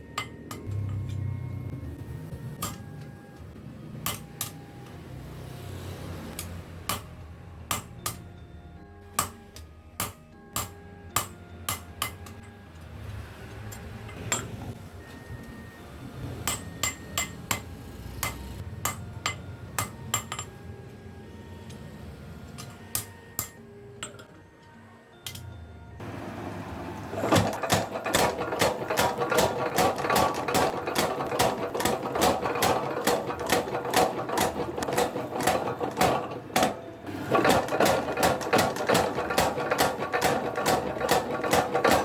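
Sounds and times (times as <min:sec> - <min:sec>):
hammer striking steel on anvil: 0:02.6 - 0:02.9, 0:04.0 - 0:04.6, 0:06.4 - 0:08.2, 0:09.2 - 0:12.5, 0:16.4 - 0:20.5, 0:22.9 - 0:24.3.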